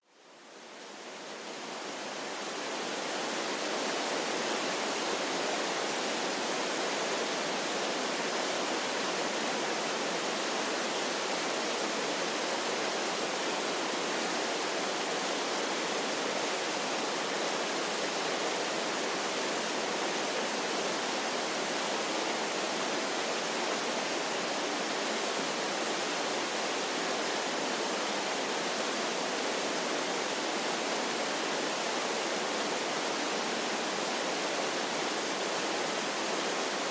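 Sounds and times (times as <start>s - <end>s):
waterfall rushing: 1.5s - 36.9s.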